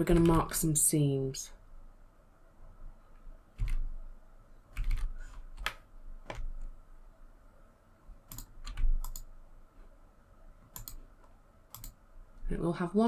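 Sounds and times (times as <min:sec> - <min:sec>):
mouse and keyboard clicks: 0:08.3 - 0:09.3, 0:10.7 - 0:11.0, 0:11.7 - 0:12.0.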